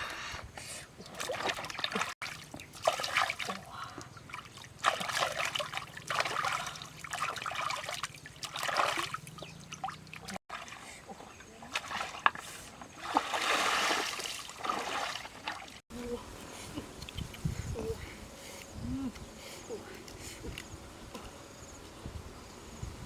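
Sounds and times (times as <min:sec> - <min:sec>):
water splashing and trickling: 0:00.0 - 0:18.2.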